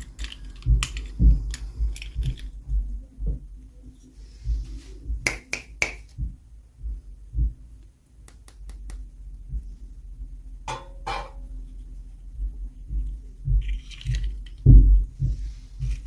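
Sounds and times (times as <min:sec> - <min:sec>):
plastic clicks: 0:00.0 - 0:02.6
soft low thuds: 0:00.6 - 0:05.3, 0:06.1 - 0:08.3, 0:09.0 - 0:16.0.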